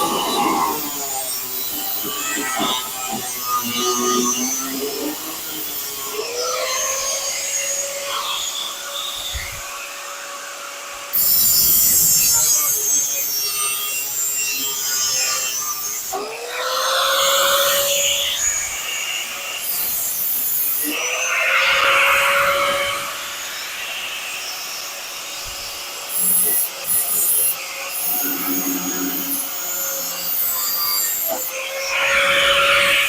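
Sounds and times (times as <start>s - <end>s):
harsh sheet metal cutting noise: 0.0s - 33.0s
power tool whine: 0.0s - 33.0s.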